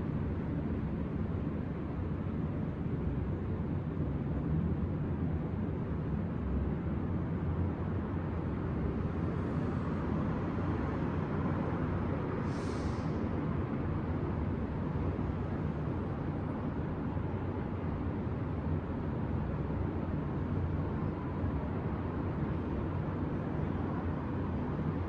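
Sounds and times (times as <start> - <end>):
city traffic rumble: 0.0 - 25.0
short hiss: 12.4 - 13.2.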